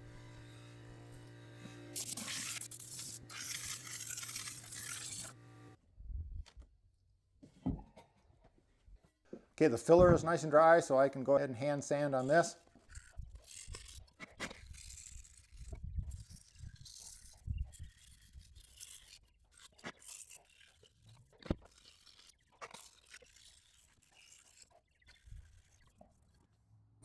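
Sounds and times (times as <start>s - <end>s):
sandpaper scraping: 0.7s - 5.5s.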